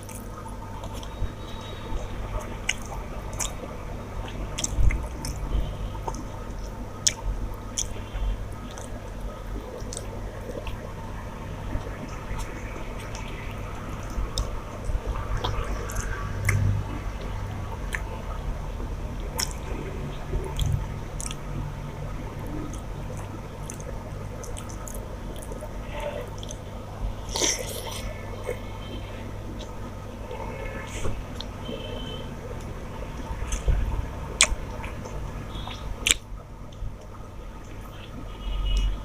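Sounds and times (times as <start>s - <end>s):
wet chewing and mouth smacks: 0.0s - 3.6s, 4.2s - 10.8s, 11.7s - 18.2s, 19.2s - 21.4s, 22.5s - 25.7s, 26.3s - 26.7s, 27.3s - 28.6s, 32.6s - 38.2s.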